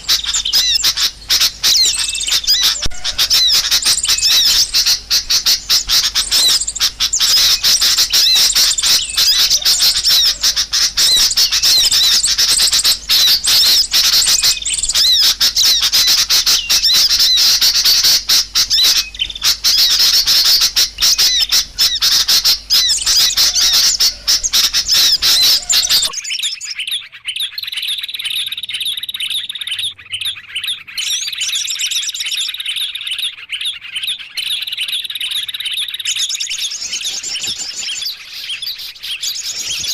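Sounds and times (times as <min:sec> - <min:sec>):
small birds chattering: 0:00.0 - 0:39.9
thin high-pitched bird chirps: 0:00.0 - 0:39.9.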